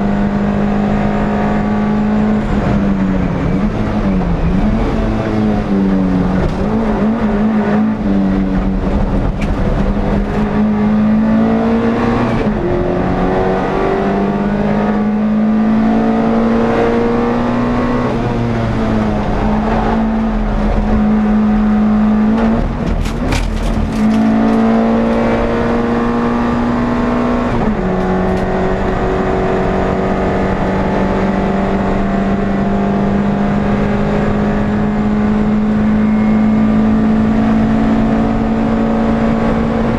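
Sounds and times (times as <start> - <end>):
race car engine revving: 0.0 - 39.9
short clatter: 22.7 - 24.7.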